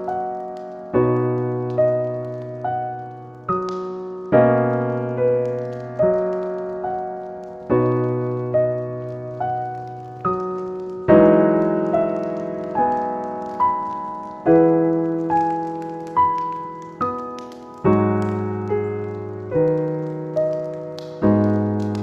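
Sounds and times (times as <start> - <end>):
slow gentle piano: 0.0 - 22.0.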